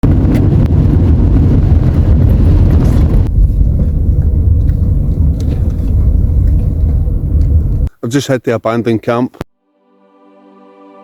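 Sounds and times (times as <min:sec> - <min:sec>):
vehicle rumbling: 0:00.0 - 0:07.9.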